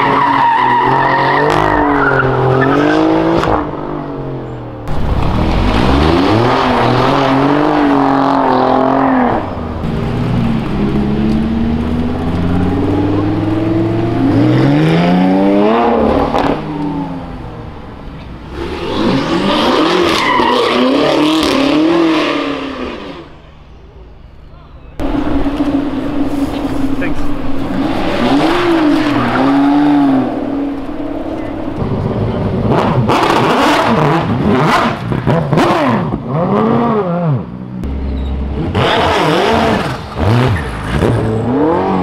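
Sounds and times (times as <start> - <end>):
car engines revving: 0.0 - 42.0
tyre squeal: 38.0 - 38.5.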